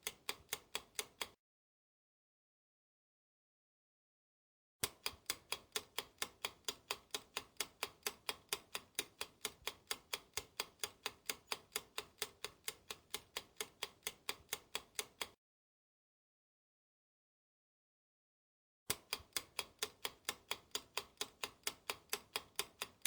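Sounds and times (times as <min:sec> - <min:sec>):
clock ticking: 0:00.0 - 0:01.3, 0:04.8 - 0:15.4, 0:18.9 - 0:23.0.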